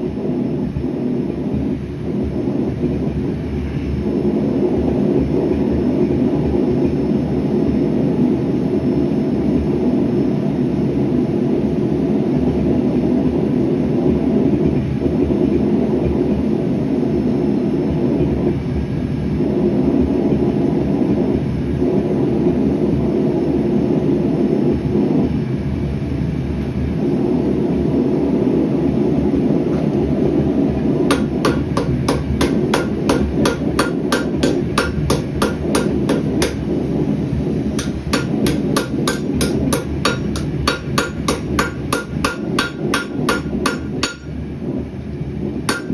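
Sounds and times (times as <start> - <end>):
gas forge burner rushing: 25.6 - 45.9
hammer blows on an anvil: 31.1 - 36.8, 37.8 - 44.4.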